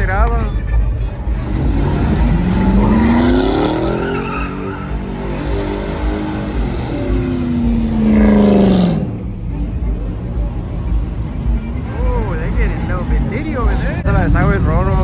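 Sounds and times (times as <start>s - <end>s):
truck engine revving: 0.0s - 15.0s
tyres squealing: 0.4s - 10.0s.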